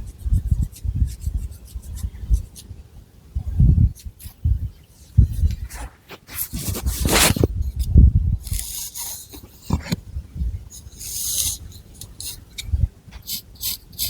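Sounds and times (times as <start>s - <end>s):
fingernails scratching through hair: 5.4s - 7.5s, 10.8s - 14.0s.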